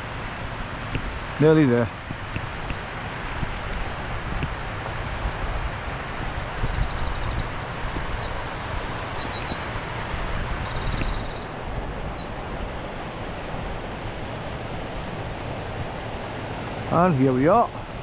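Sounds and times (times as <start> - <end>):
waterfall rushing: 0.0 - 18.0
wind rumbling on microphone: 0.0 - 18.0
songbird chirping and trilling: 5.5 - 12.4.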